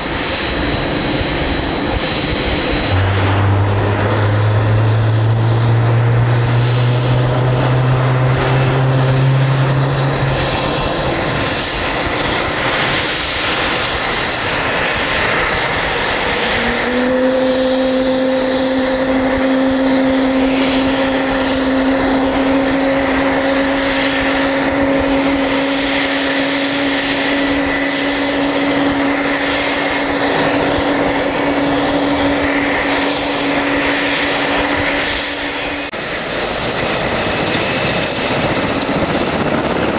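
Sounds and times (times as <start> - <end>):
helicopter turbine engines whining: 0.0 - 39.9
low hum: 1.7 - 35.9
steady mid-pitched tone: 2.7 - 11.6, 15.8 - 35.9.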